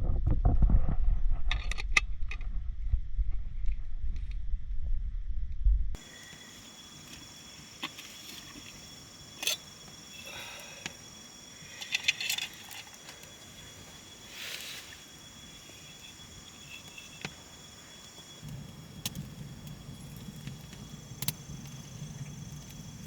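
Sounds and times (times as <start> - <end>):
insects droning: 6.0 - 23.0
sharp clicks and snaps: 18.4 - 19.8, 20.4 - 21.8.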